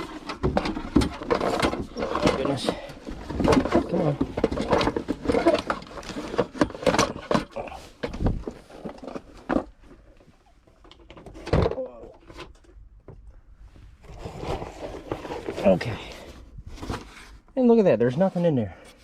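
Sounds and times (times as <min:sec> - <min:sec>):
cardboard boxes knocking and scraping: 0:00.0 - 0:09.8.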